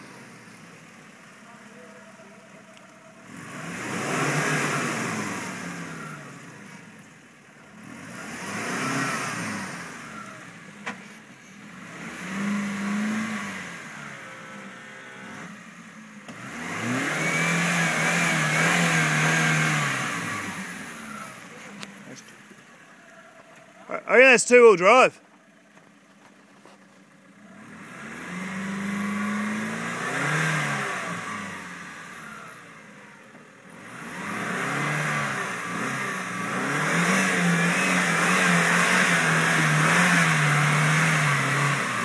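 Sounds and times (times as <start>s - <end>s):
engine revving hard: 3.2s - 6.9s, 7.7s - 10.7s, 11.7s - 15.7s, 16.3s - 21.6s, 27.6s - 33.0s, 33.7s - 42.0s.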